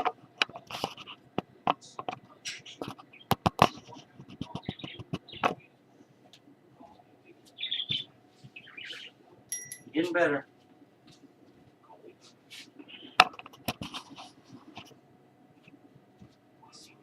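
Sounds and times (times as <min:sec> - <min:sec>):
toy bell clicks and clinks: 0:09.5 - 0:10.0.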